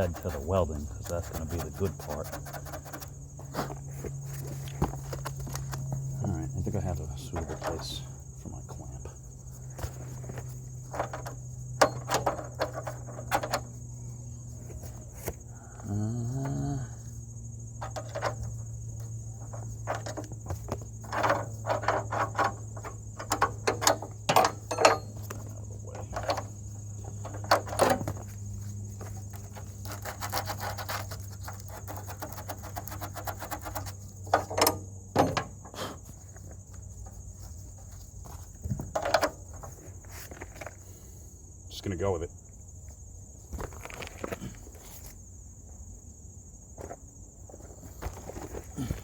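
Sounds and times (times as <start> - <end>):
crickets chirping: 0.0 - 49.0
metal parts clicking and rattling: 10.2 - 13.8, 19.4 - 28.4.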